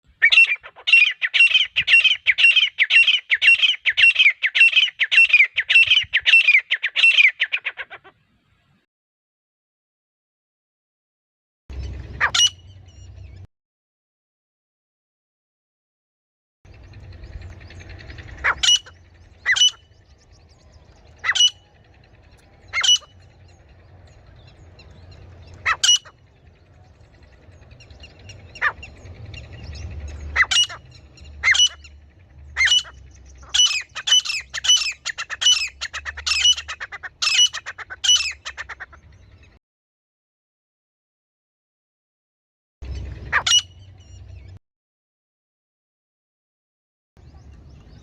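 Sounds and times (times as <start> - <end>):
francolin calling: 0.2 - 7.9, 16.8 - 39.6
faint low rumble: 16.7 - 36.9.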